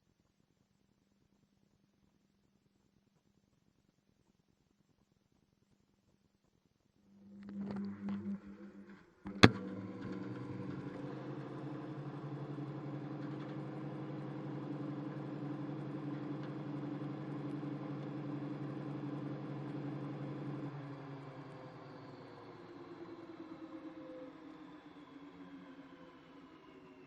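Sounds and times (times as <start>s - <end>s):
washing machine motor hum: 7.1s - 26.7s.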